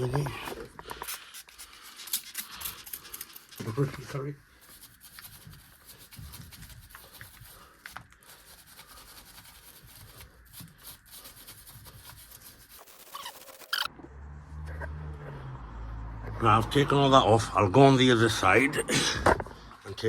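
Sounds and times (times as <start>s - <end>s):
hands rubbing and scraping tools: 0.0s - 13.9s.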